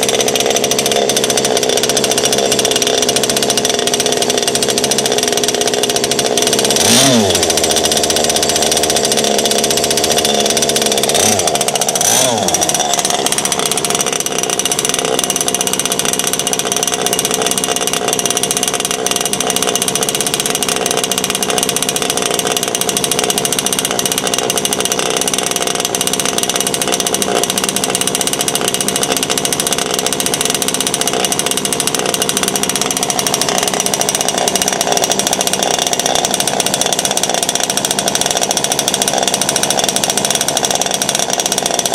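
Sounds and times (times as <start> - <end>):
model boat engine at high revs: 0.0 - 41.9.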